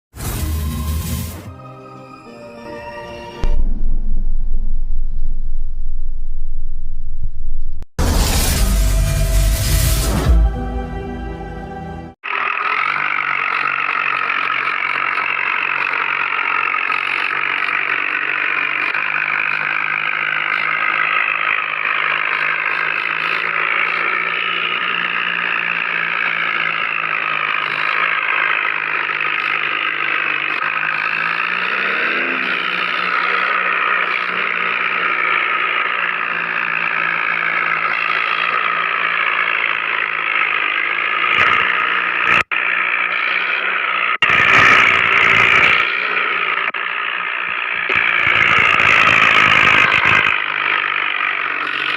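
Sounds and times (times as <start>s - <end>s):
tractor engine revving: 0.1s - 51.9s.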